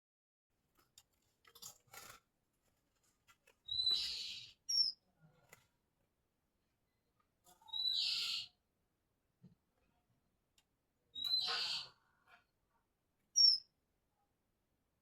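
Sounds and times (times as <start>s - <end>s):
bird whistling and rasping: 3.7s - 4.9s, 7.7s - 8.5s, 11.2s - 12.0s, 13.4s - 13.6s.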